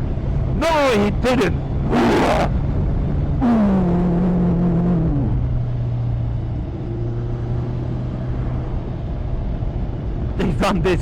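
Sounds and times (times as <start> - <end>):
motorcycle engine running: 2.6 - 6.6.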